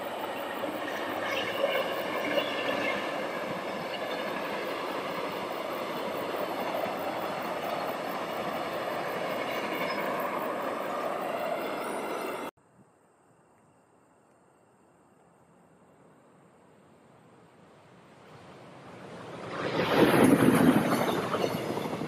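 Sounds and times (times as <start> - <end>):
train wheels rushing on rails: 0.0 - 12.5, 18.2 - 22.0.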